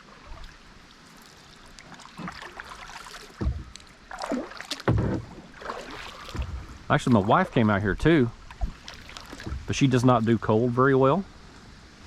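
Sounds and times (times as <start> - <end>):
water lapping against a kayak: 0.0 - 10.7
low thump: 3.4 - 3.8, 4.8 - 5.4.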